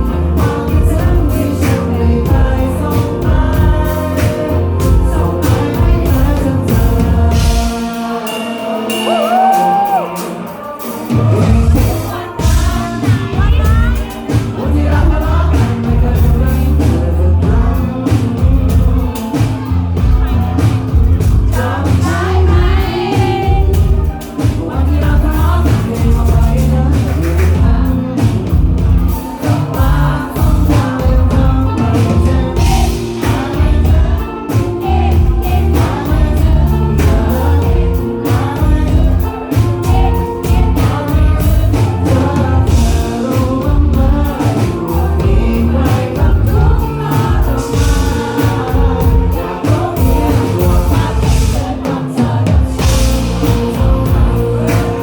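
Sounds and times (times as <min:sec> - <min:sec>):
live pop-rock band with singing: 0:00.0 - 0:55.0.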